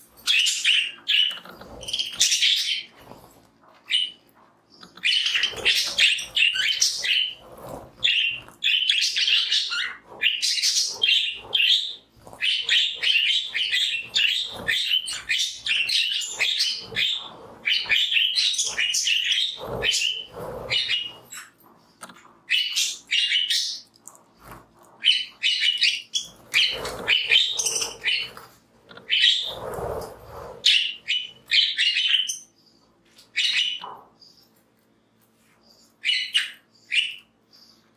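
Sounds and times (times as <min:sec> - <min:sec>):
budgerigars chattering and chirping: 0:00.3 - 0:02.9, 0:04.8 - 0:21.5, 0:25.0 - 0:28.4, 0:29.0 - 0:29.6.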